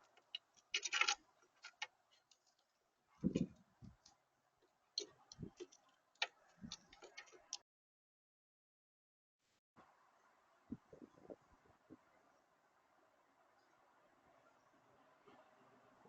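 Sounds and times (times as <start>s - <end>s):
beaks tapping on seed and feeder: 0.0s - 7.6s.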